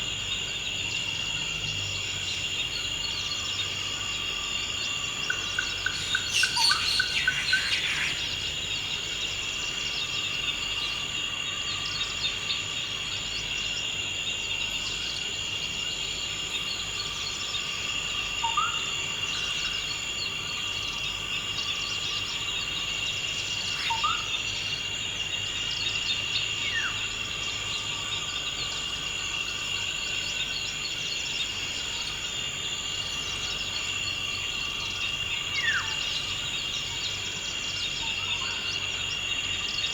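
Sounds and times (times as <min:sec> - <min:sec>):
high insect chorus: 0:00.0 - 0:39.9
bird calls: 0:05.2 - 0:08.6.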